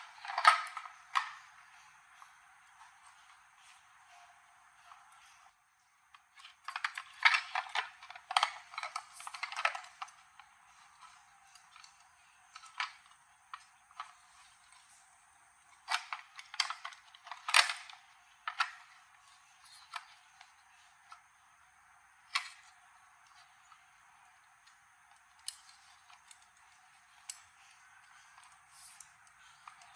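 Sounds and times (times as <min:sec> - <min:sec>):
small hard parts clattering: 0:00.0 - 0:01.5, 0:06.2 - 0:15.0, 0:15.8 - 0:20.3.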